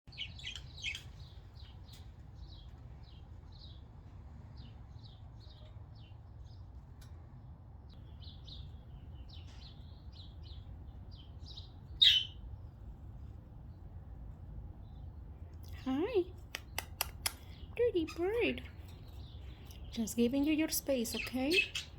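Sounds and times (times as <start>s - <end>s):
budgerigars chirping: 0.1s - 1.8s, 8.1s - 12.5s, 17.4s - 21.9s.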